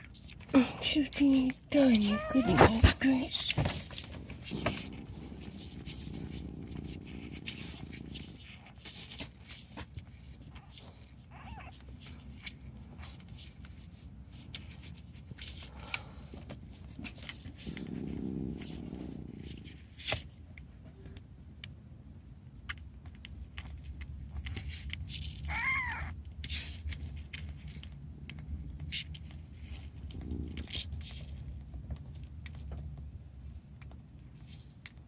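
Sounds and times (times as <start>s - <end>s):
handling scrapes and rustles: 0.0s - 20.5s
kitten mewing: 1.9s - 3.1s, 11.3s - 11.8s, 25.5s - 26.2s.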